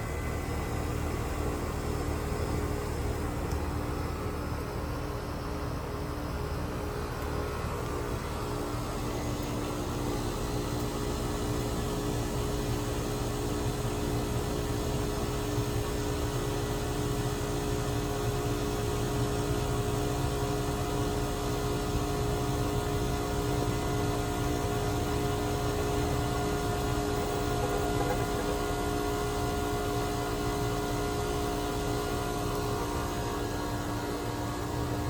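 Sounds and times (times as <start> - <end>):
heat pump unit humming: 0.0 - 35.0.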